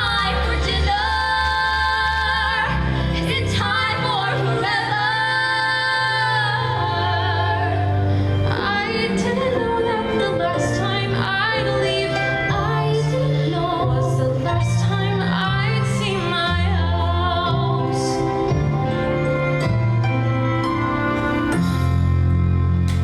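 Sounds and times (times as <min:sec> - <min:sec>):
woman singing: 0:00.0 - 0:18.6
instrumental accompaniment: 0:07.1 - 0:23.0.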